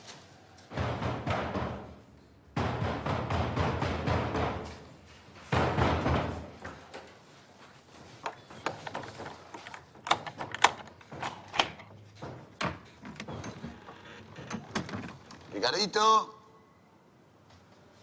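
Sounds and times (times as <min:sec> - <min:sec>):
door banging: 0:05.5 - 0:06.6, 0:08.3 - 0:15.8
sharp irregular knocks and clicks: 0:08.2 - 0:15.6.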